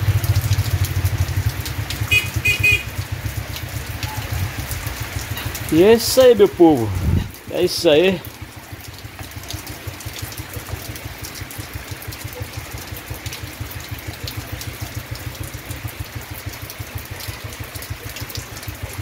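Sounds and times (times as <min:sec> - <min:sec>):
steady rain falling: 0:00.0 - 0:19.0
fast low thumps: 0:06.9 - 0:07.4.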